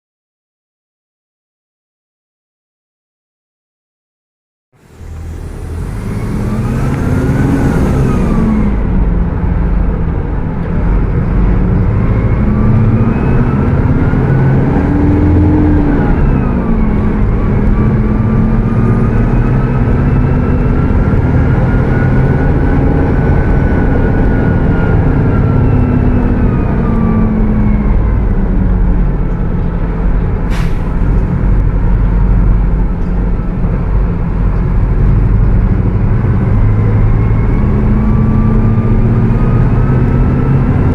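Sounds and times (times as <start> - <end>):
bus diesel engine revving: 4.8 - 40.9
loud engine cooling fan: 4.8 - 40.9.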